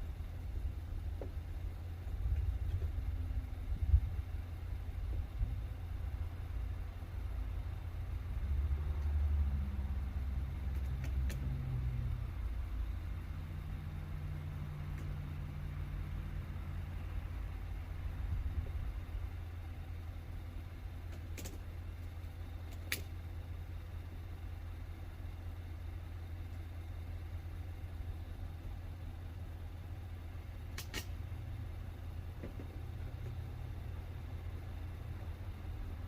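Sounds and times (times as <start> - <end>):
truck engine idling: 0.0 - 36.0
sharp clicks: 30.7 - 31.2.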